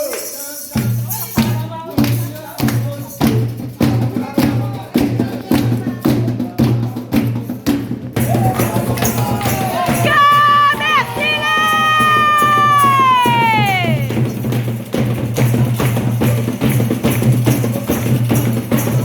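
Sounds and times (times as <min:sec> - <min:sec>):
hand drumming: 0:00.8 - 0:19.0
high-pitched drawn-out cries: 0:10.0 - 0:14.2.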